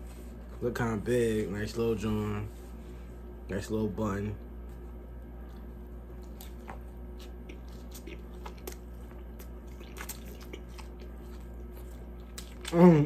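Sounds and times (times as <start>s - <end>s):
steady low hum: 0.0s - 13.0s
man chewing with wet mouth clicks: 5.2s - 13.0s.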